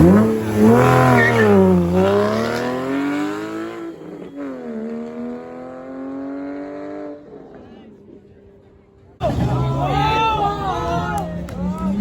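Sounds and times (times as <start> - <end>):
car engine accelerating hard: 0.0 - 7.6.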